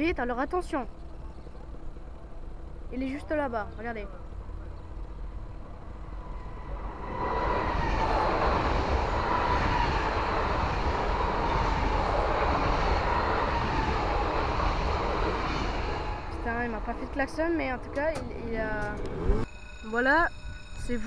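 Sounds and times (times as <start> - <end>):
electric train passing fast: 0.9 - 21.0.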